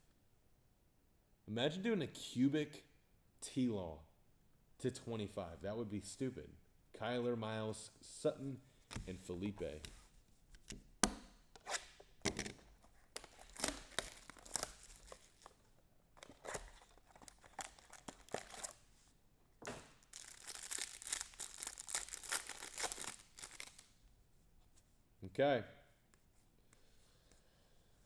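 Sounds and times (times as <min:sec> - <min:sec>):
card pack wrappers tearing: 0:13.2 - 0:15.6, 0:16.2 - 0:18.8, 0:19.8 - 0:23.9.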